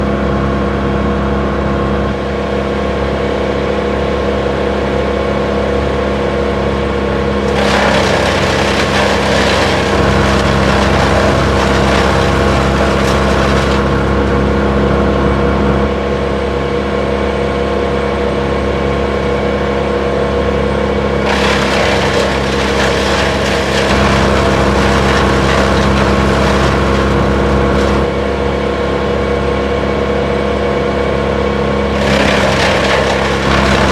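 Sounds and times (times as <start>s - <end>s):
wood chipper engine hum: 0.0s - 33.9s
chipper grinding rushing noise: 3.8s - 16.0s, 18.8s - 30.4s, 31.1s - 33.9s.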